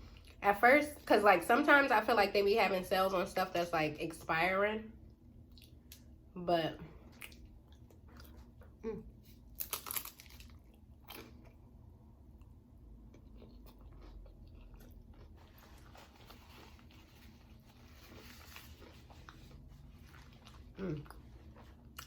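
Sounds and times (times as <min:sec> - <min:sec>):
person chewing food: 0:05.4 - 0:06.1, 0:07.0 - 0:22.0
crunchy bites: 0:09.6 - 0:11.6.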